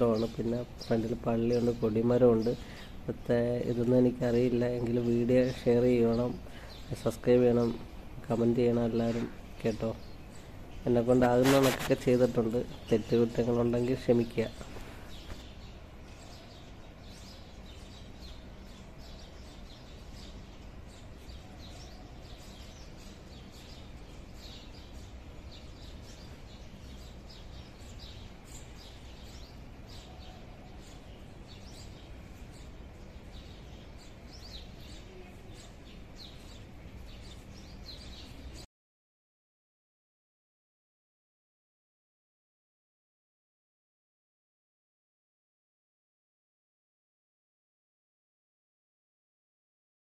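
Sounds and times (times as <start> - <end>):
small birds chirping: 0.0 - 38.7.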